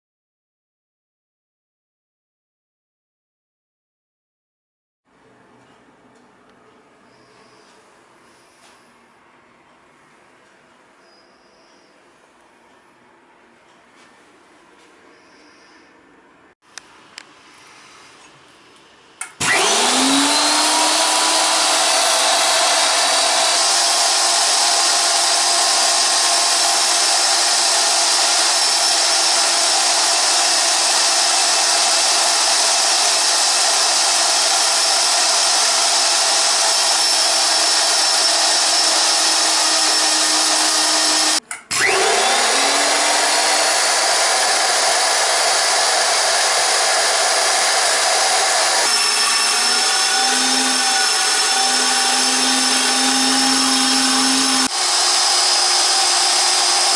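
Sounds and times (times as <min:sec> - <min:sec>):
grinding mill whining: 0:19.2 - 0:56.9.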